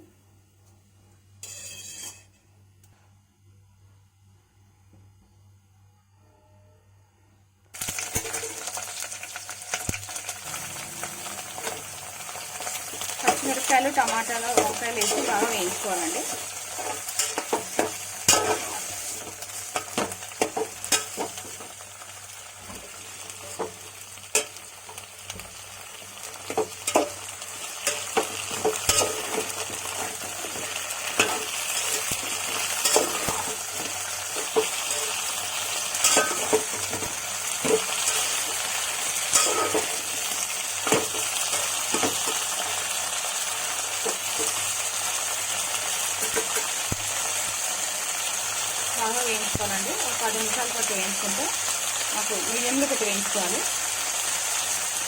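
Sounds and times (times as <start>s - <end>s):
spoon scraping a pan: 1.4s - 2.3s, 12.7s - 21.7s, 26.3s - 42.5s
vegetables sizzling in oil: 7.8s - 55.0s.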